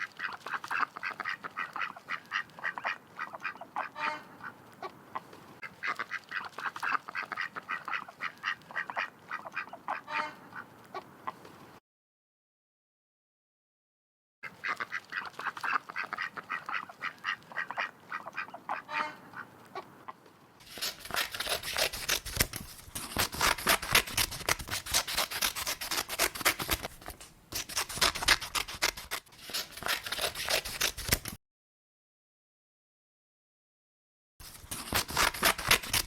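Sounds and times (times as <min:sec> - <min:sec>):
ducks quacking: 0:00.0 - 0:11.5, 0:14.5 - 0:20.2.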